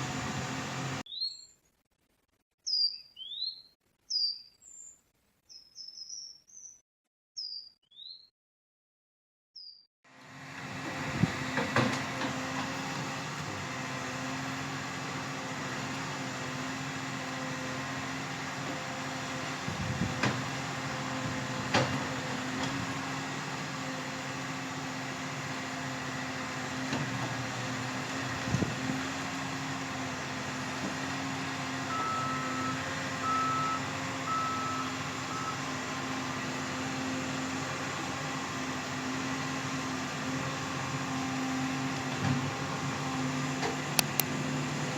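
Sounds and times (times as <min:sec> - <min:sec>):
diesel engine running: 0:00.0 - 0:01.0, 0:10.1 - 0:44.9
reversing alarm beeps: 0:31.9 - 0:35.7.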